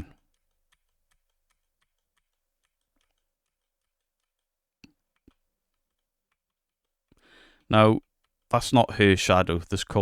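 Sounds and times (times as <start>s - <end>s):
faint clicking: 0.0s - 7.2s.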